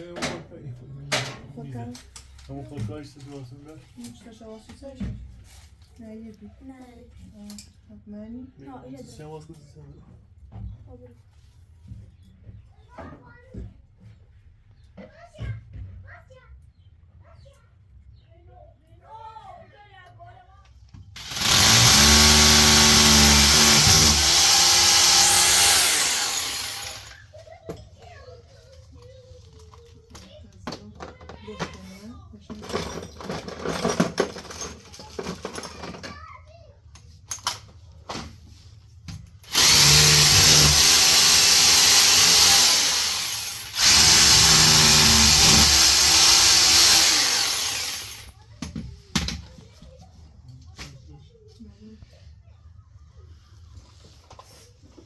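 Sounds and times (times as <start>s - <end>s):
power tool running: 21.2s - 27.2s, 39.4s - 48.3s.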